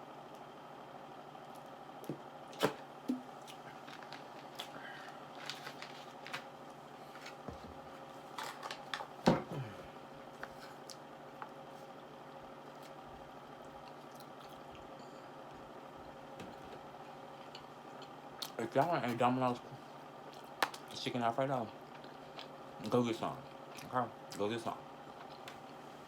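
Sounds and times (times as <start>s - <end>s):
steady low hum: 0.0s - 26.0s
wet mouth eating noises: 13.6s - 14.9s.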